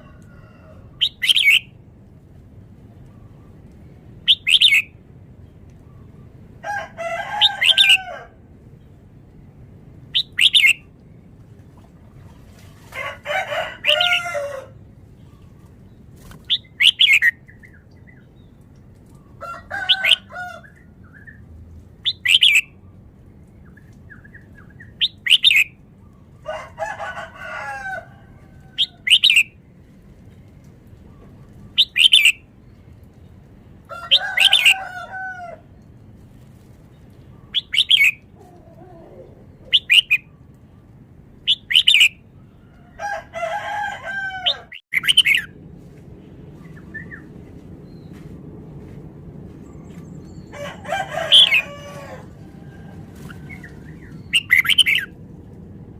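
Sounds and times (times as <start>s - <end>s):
bird singing: 1.0s - 1.7s, 4.3s - 5.0s, 10.2s - 11.0s, 15.2s - 18.6s, 21.1s - 26.4s, 28.8s - 29.6s, 31.1s - 33.0s, 39.1s - 40.5s, 41.4s - 42.2s, 44.5s - 45.5s, 53.4s - 55.1s.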